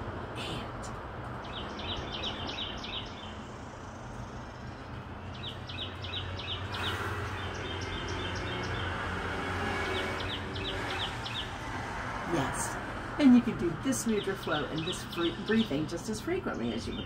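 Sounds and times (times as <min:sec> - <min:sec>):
songbird chirping: 0:01.3 - 0:09.0, 0:13.2 - 0:17.0.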